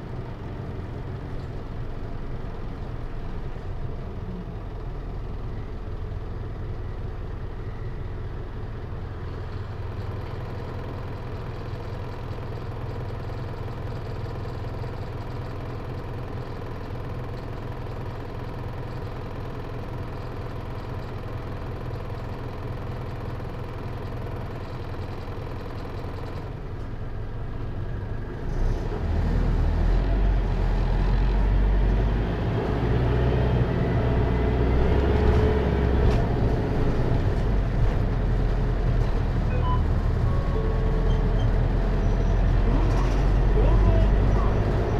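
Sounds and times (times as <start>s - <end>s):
diesel engine idling: 0.0s - 28.4s, 30.2s - 44.9s
bus engine accelerating: 26.4s - 44.9s.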